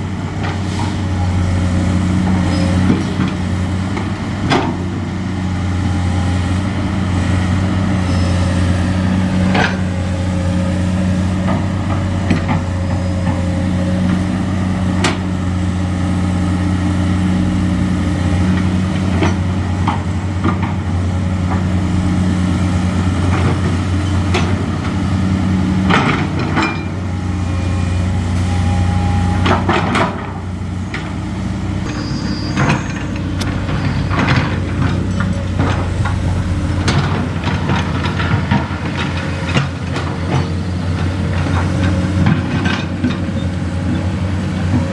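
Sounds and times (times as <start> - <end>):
diesel engine idling: 30.4 - 39.9
sharp knocks and clanks: 31.9 - 40.5.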